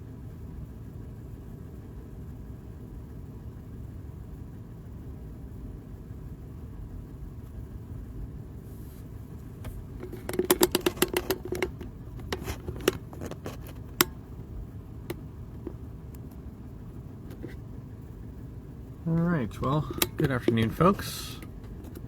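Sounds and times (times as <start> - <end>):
steady low hum: 0.0 - 22.0
sharp clicks and taps: 9.6 - 14.2, 19.5 - 22.0.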